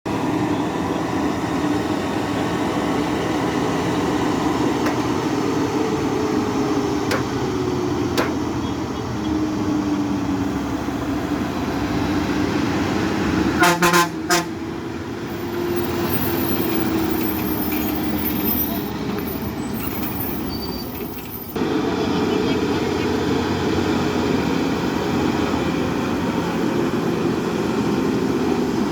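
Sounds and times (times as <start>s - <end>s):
heavy vehicle engine running: 0.1s - 28.9s
short horn toots: 13.6s - 14.6s.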